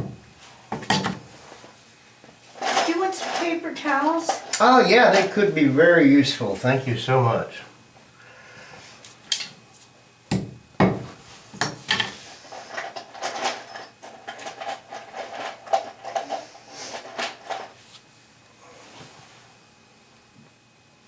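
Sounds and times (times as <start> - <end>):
heavy thumps of objects: 10.3 - 12.1.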